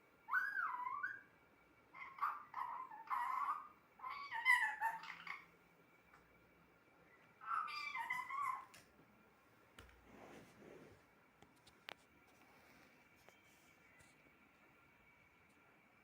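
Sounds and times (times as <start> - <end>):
parrot calling: 0.3 - 1.3, 1.9 - 5.6, 7.4 - 8.8.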